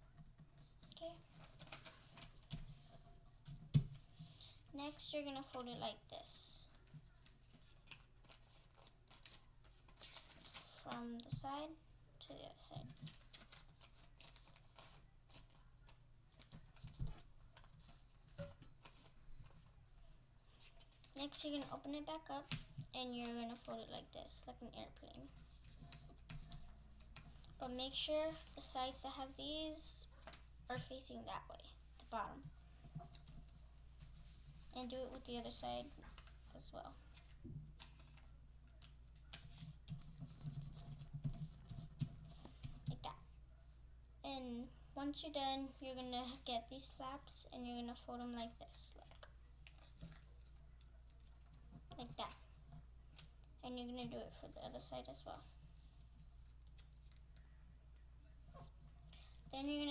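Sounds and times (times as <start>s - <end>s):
paper rustling and crinkling: 0.3s - 5.9s, 6.6s - 11.3s, 12.7s - 19.8s, 20.4s - 24.3s, 25.0s - 31.1s, 31.9s - 43.0s, 47.8s - 53.4s, 54.0s - 59.9s.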